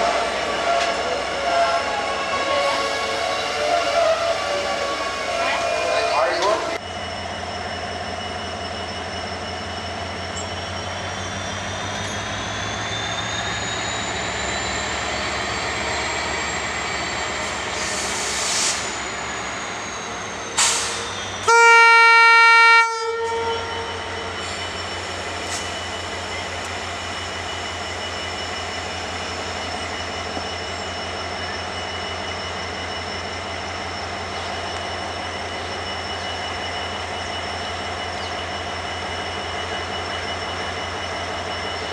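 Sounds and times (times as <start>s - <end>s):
train running on rails: 0.0s - 41.9s
train horn blast: 21.4s - 24.1s.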